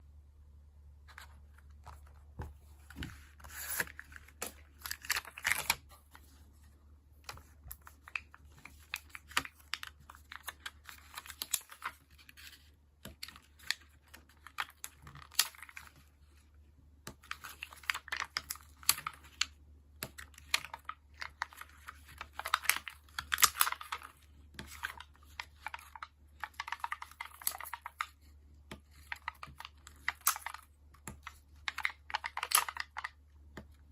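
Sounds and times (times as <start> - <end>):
paper rustling: 1.1 - 16.0.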